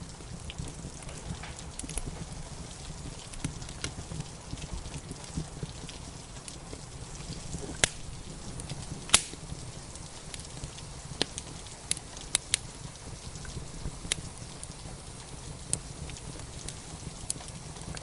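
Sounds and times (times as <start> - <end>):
rain hissing: 0.0 - 18.0
wood fire crackling: 0.0 - 18.0.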